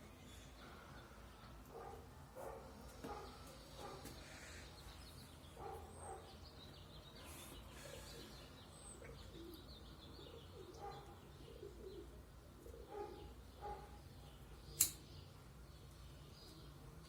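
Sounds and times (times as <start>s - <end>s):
pigeons cooing: 7.2s - 14.0s.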